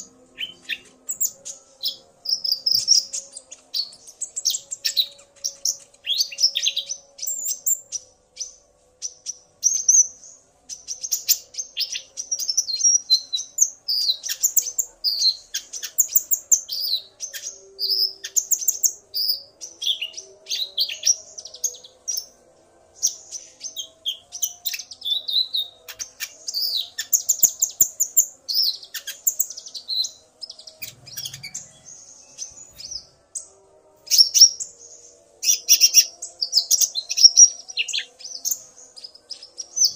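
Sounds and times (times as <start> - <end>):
bird chirping and twittering: 0.0 - 39.9
bird calls: 23.0 - 33.5.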